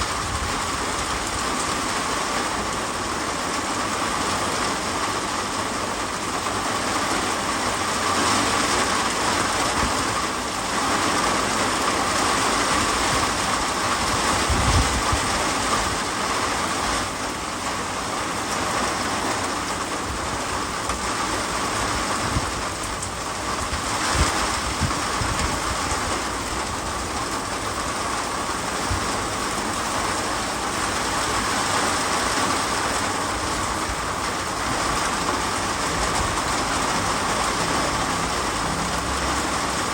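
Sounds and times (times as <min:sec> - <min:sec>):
heavy rain: 0:00.0 - 0:39.9
wind buffeting microphone: 0:12.4 - 0:17.1, 0:20.1 - 0:37.6.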